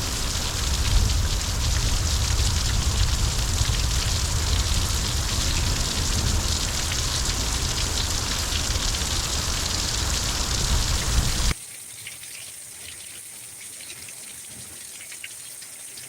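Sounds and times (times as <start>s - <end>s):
deep low rumble: 0.0s - 11.5s
heavy rain pouring: 0.0s - 11.6s.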